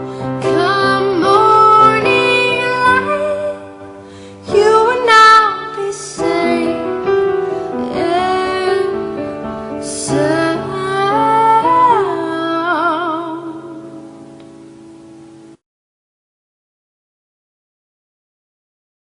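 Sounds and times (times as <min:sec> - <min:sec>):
person singing slow melody: 0:00.0 - 0:14.8.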